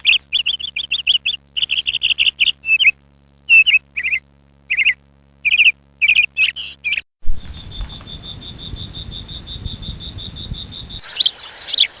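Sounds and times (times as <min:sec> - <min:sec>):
insect chirring: 0:00.0 - 0:12.0
small bird chirping: 0:00.0 - 0:12.0.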